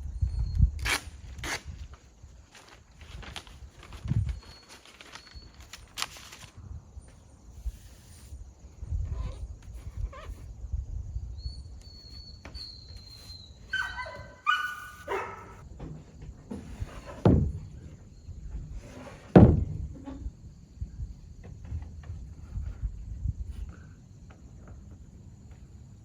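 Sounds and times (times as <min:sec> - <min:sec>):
short pitched calls: 0:11.9 - 0:15.6
heavy hollow wooden thunks: 0:15.7 - 0:20.4.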